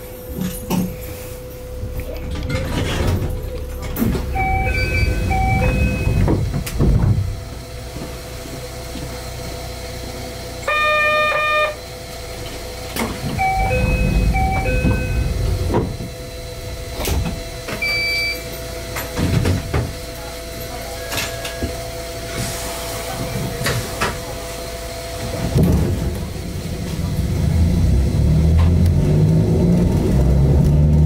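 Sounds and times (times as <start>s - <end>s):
low rumble of stopped train: 0.0s - 31.0s
electronic chime tones: 4.4s - 6.2s, 13.4s - 15.4s
short beep: 4.4s - 6.2s, 13.4s - 15.4s, 17.8s - 18.5s
buzzer tone: 4.4s - 6.3s, 10.6s - 11.8s, 13.4s - 15.4s, 17.8s - 18.5s.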